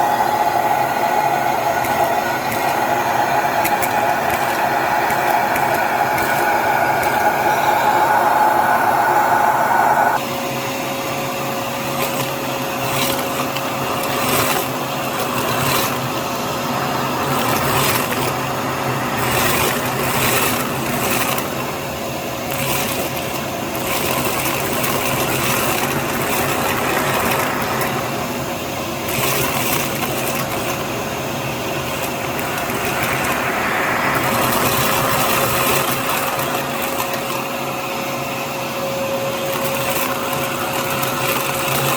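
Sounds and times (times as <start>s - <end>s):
louder higher hum: 0.0s - 10.2s, 16.2s - 21.3s, 24.8s - 29.2s, 30.8s - 37.6s
vacuum cleaner whine: 0.0s - 41.9s.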